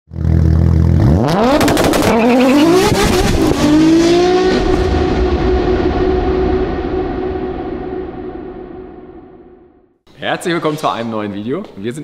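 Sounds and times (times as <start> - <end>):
car engine accelerating hard: 0.1 - 6.8
sharp cracks: 1.5 - 2.3.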